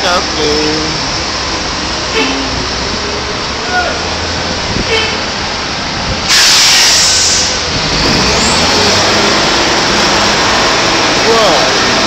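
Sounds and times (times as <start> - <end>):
construction machinery running: 0.0 - 12.0
loud hiss: 6.2 - 8.6.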